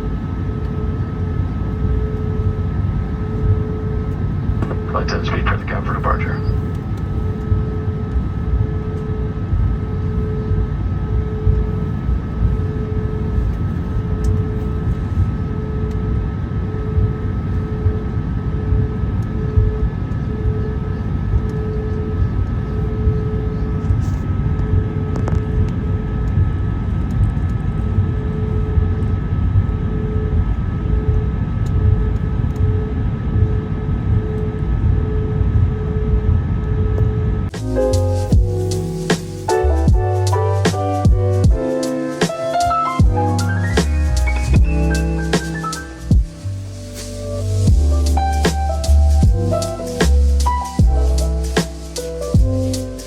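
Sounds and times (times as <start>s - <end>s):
aircraft cabin roar: 0.0s - 19.0s
pulsing mid-pitched tone: 37.6s - 53.0s
thin high tones: 37.6s - 53.0s.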